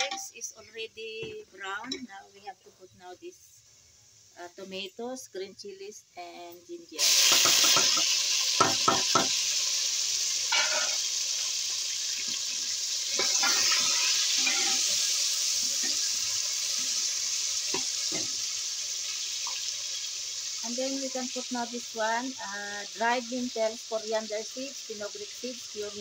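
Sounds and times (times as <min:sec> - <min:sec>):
vegetables sizzling in hot oil: 0:00.0 - 0:26.0
metal spoon scraping a pan: 0:07.0 - 0:09.4, 0:10.5 - 0:11.1, 0:12.2 - 0:18.6.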